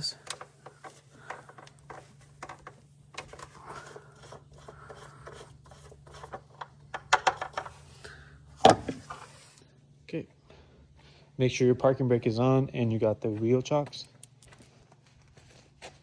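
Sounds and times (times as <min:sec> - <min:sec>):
handling clicks and scrapes: 0:00.0 - 0:09.6.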